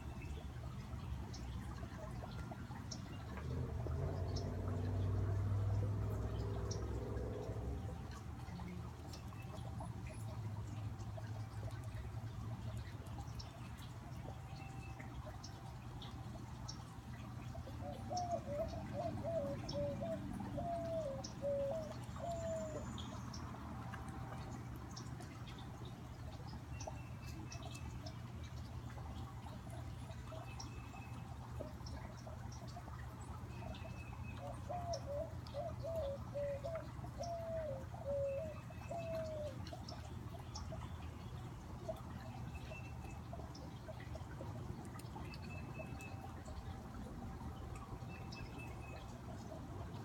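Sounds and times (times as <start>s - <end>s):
fountain trickling: 0.0s - 50.0s
bird cooing: 17.8s - 22.9s, 34.4s - 39.8s.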